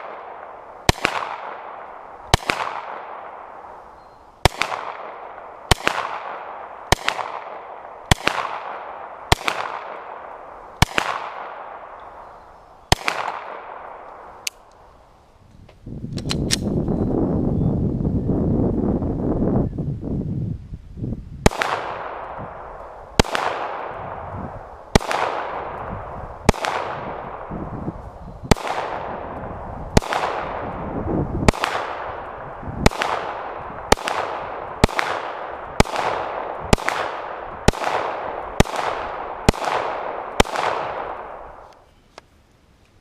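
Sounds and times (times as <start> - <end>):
rifle shots echoing: 0.0 - 14.8, 21.4 - 41.8.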